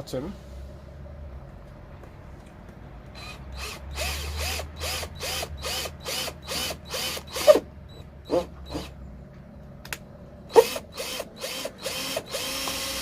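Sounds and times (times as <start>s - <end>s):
power drill pulsing: 3.1s - 8.9s, 10.5s - 13.0s.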